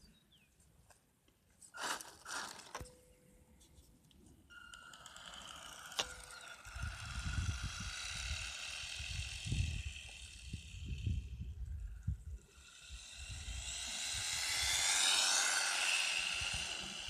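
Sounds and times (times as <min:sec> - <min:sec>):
electric motor and gears whining: 0:04.5 - 0:17.0.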